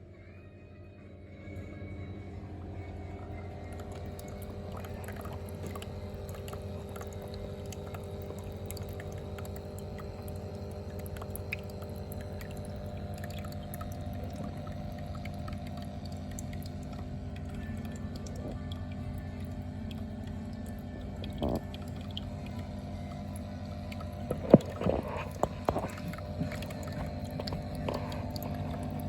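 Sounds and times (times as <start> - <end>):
steady low hum: 0.0 - 29.0
water trickling and dripping: 2.6 - 29.0.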